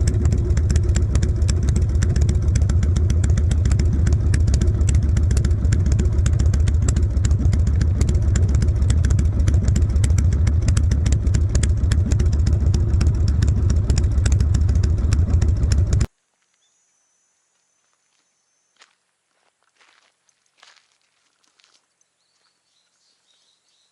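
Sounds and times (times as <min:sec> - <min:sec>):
motorcycle engine rumbling: 0:00.0 - 0:16.1.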